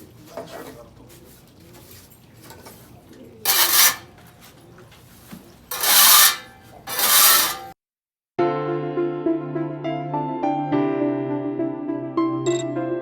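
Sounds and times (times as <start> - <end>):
rasping scraping across floor: 3.5 - 4.5, 5.1 - 7.8.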